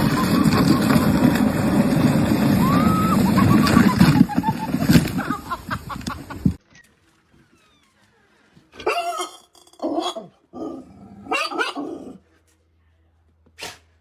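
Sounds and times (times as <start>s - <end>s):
dog barking: 9.9s - 12.2s.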